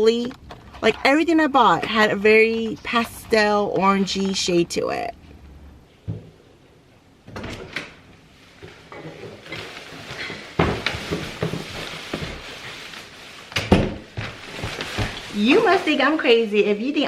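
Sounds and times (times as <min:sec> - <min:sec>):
rustling: 0:08.2 - 0:16.5.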